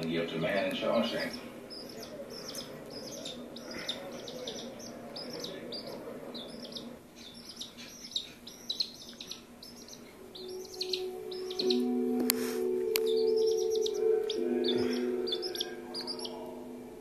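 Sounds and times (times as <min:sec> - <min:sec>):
chick peeping: 0:00.5 - 0:17.0.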